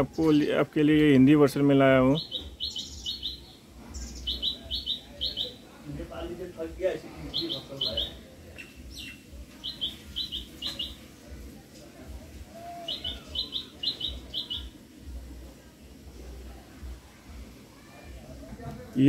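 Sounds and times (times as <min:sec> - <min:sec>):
small bird chirping: 0:02.1 - 0:05.7, 0:07.2 - 0:11.1, 0:12.7 - 0:14.8.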